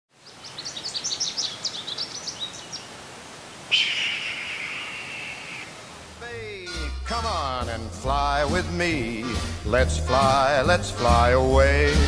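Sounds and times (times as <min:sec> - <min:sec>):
small bird twittering: 0:00.2 - 0:02.9, 0:03.7 - 0:05.8
bird of prey screaming: 0:03.7 - 0:05.8.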